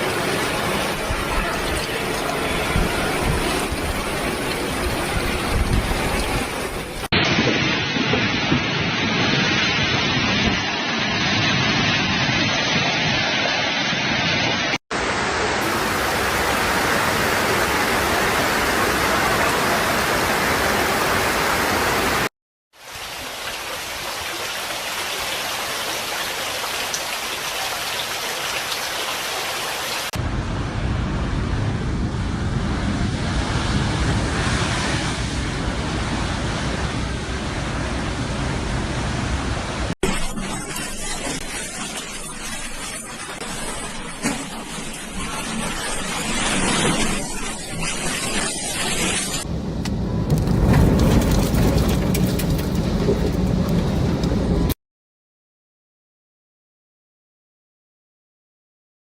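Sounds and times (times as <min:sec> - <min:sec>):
storm rushing noise: 0:00.0 - 0:22.3, 0:30.2 - 0:54.8.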